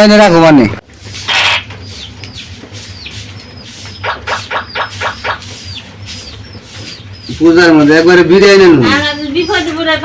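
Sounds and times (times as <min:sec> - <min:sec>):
small bird chirping: 0:01.1 - 0:10.0.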